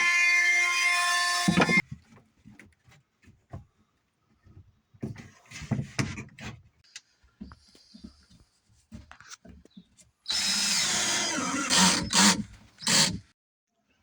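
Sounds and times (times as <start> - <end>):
power drill whining: 10.3 - 13.2.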